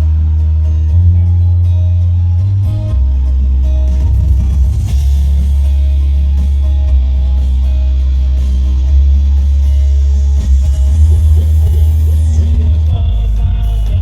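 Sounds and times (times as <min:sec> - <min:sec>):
rock band over sound system: 0:00.0 - 0:14.0.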